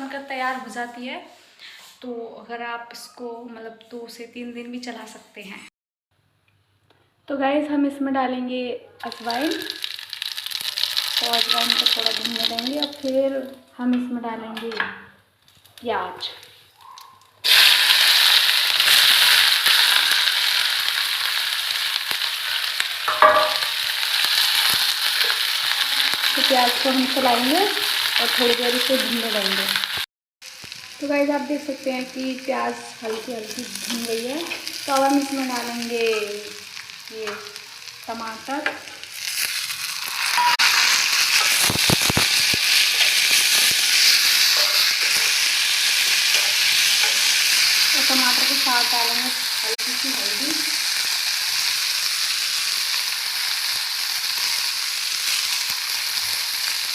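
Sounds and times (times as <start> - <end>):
onion sizzling in hot oil: 9.0 - 13.6, 17.4 - 56.9
ringing clink from pan: 23.1 - 23.6.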